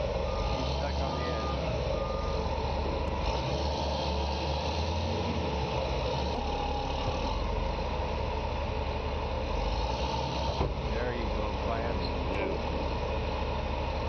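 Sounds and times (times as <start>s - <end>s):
heavy machine engine running: 0.0s - 14.0s.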